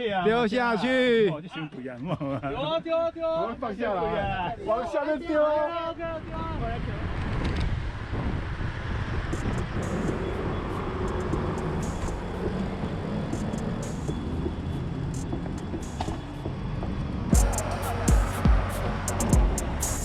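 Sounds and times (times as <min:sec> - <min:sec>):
low wind rumble: 0:05.9 - 0:13.6
road traffic noise: 0:06.8 - 0:20.0.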